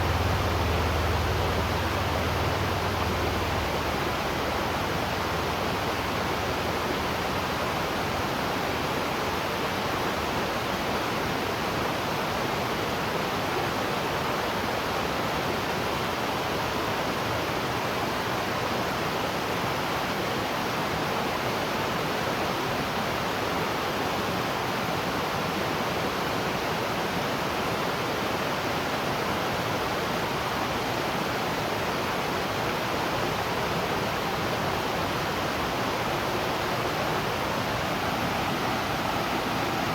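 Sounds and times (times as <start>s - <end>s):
waterfall rushing: 0.0s - 7.2s, 32.6s - 39.9s.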